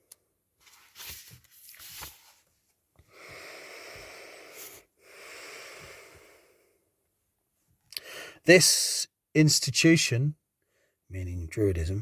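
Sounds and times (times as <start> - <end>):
man breathing in: 3.1 - 6.8, 8.0 - 8.4.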